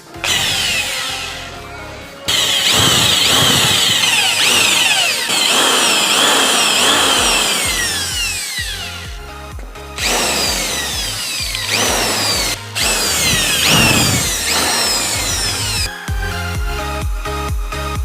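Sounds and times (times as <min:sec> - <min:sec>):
handheld power drill working: 0:00.0 - 0:01.5, 0:02.3 - 0:09.2, 0:10.0 - 0:15.9.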